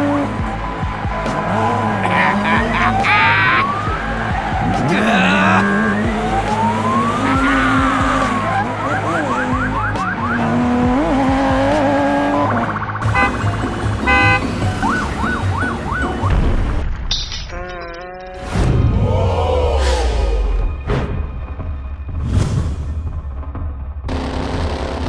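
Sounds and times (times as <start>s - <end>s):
rising and falling siren wail: 0.0s - 13.0s.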